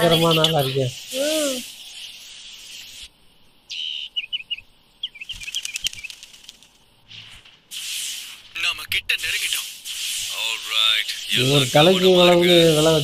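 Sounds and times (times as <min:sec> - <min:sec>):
birds chirping: 0:00.0 - 0:07.4
short hiss: 0:07.1 - 0:08.6, 0:09.3 - 0:13.0.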